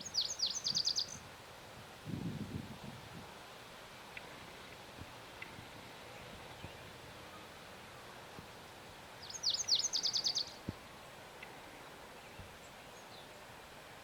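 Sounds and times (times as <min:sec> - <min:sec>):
bird singing: 0:00.0 - 0:01.2, 0:09.2 - 0:10.6, 0:11.4 - 0:13.4.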